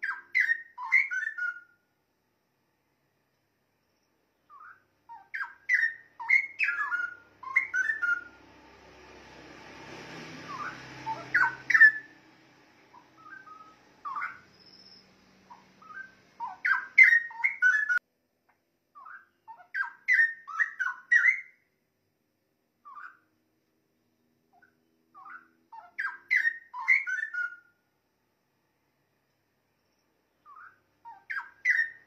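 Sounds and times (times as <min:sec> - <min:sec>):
bird singing whistled phrases: 0:00.0 - 0:01.8, 0:04.4 - 0:08.4, 0:10.4 - 0:12.1, 0:13.2 - 0:18.0, 0:19.0 - 0:21.6, 0:22.8 - 0:23.2, 0:24.6 - 0:27.7, 0:30.4 - 0:32.0.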